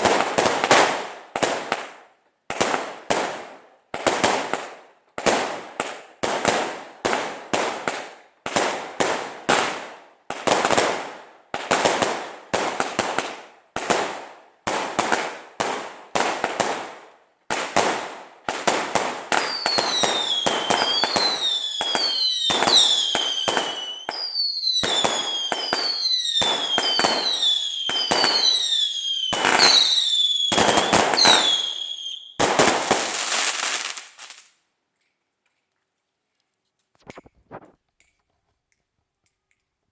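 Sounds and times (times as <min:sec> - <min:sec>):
fireworks bangs: 0:02.5 - 0:34.5
fireworks crackle: 0:17.6 - 0:34.6, 0:37.0 - 0:37.8
firework whistles falling in pitch: 0:19.4 - 0:32.4.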